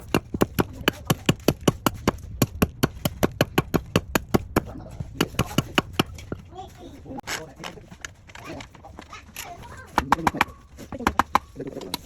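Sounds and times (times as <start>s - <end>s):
rapid sharp knocks: 0.0s - 6.6s, 9.4s - 12.0s.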